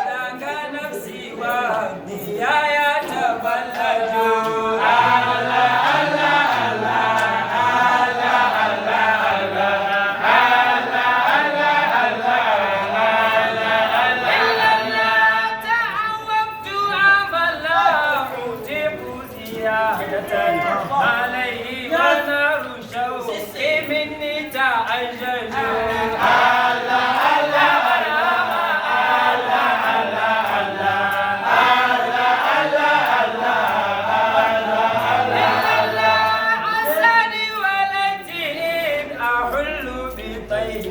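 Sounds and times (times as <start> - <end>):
voices chanting unaccompanied: 0.0 - 40.9.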